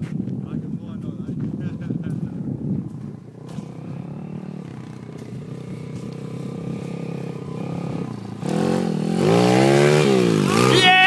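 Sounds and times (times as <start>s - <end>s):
pit bike engine revving: 3.0s - 11.0s.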